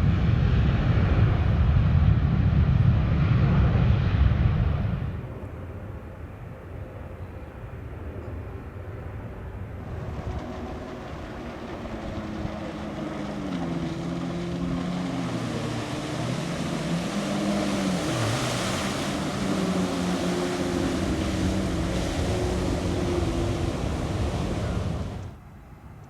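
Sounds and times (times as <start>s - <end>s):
jet engines at takeoff thrust: 0.0s - 26.0s.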